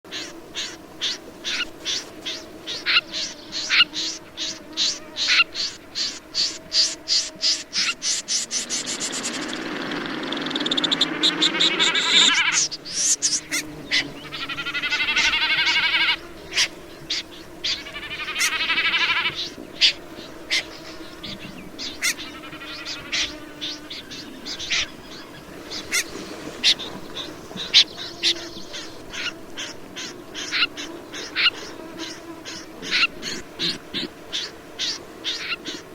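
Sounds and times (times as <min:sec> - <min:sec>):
bird calling sharp notes: 0:00.1 - 0:20.8
bird rasping trills: 0:00.1 - 0:35.9.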